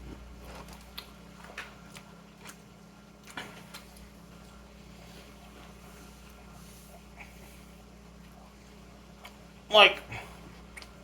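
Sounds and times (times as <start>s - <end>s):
low room hum: 0.0s - 11.0s
chewing with wet mouth clicks: 0.4s - 4.1s, 9.2s - 9.5s, 10.6s - 11.0s.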